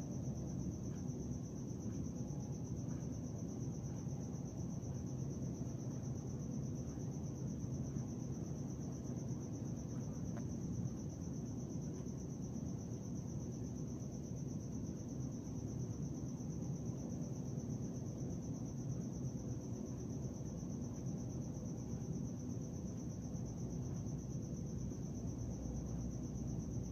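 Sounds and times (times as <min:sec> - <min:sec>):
constant low rumble: 0:00.0 - 0:26.9
crickets trilling: 0:00.0 - 0:26.9.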